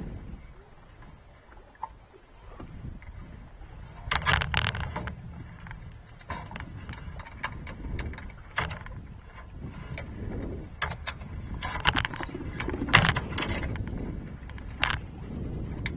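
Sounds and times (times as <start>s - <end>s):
metallic clicks and knocks: 4.1s - 9.0s, 10.8s - 15.1s.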